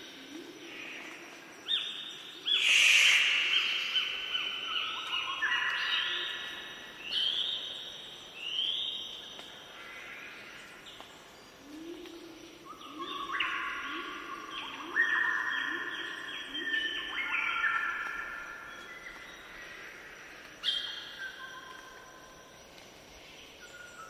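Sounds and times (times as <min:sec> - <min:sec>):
birds singing whistled notes: 0:01.7 - 0:09.5, 0:10.9 - 0:19.6, 0:20.6 - 0:22.1, 0:23.4 - 0:24.0.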